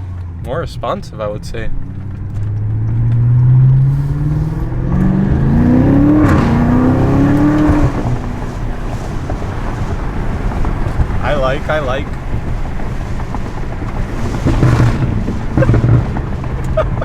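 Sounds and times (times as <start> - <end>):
car engine accelerating hard: 0.0 - 17.0.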